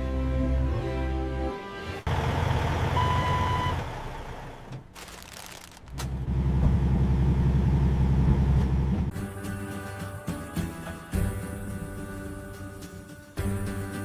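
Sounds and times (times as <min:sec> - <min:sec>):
music: 0:00.0 - 0:02.0, 0:09.1 - 0:14.0
truck engine running: 0:02.0 - 0:09.2
reversing beep: 0:02.9 - 0:03.8.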